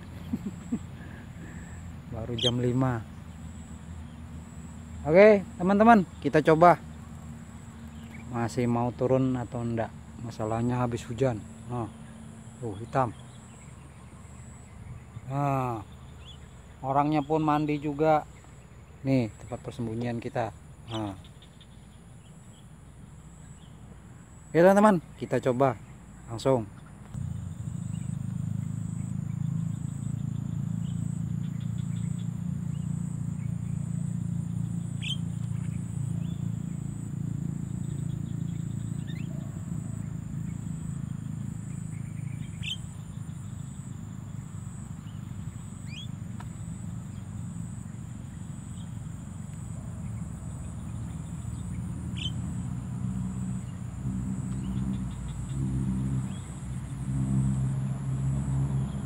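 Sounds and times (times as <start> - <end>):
faint high pulsing whine: 0.0 - 59.0
sharp rising bird chirps: 0.0 - 59.0
steady low drone: 27.1 - 42.6, 47.2 - 59.0.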